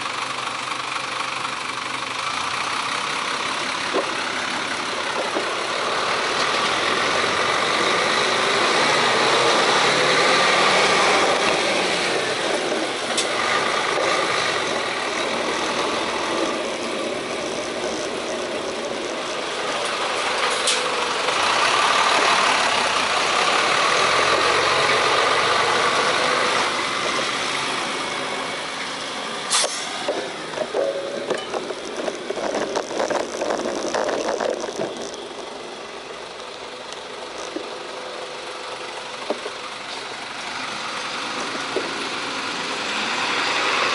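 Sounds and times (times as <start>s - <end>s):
road traffic: 0.0s - 43.9s
vehicles passing close: 0.0s - 43.9s.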